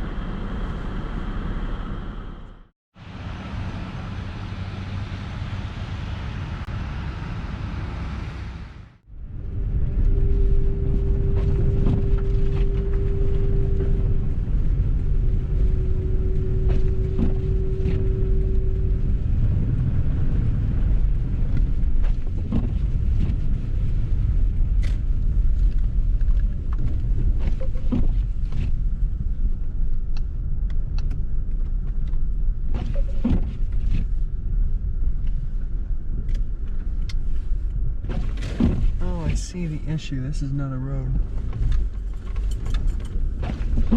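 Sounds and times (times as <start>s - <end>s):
vehicle engine and tyres rumbling: 0.0s - 43.9s
mid-pitched hum: 5.2s - 32.5s.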